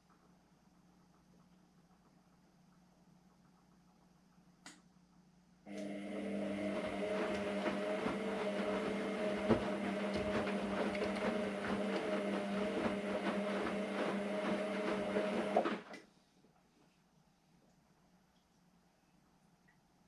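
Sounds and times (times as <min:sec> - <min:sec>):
washing machine motor hum: 0:05.7 - 0:16.0.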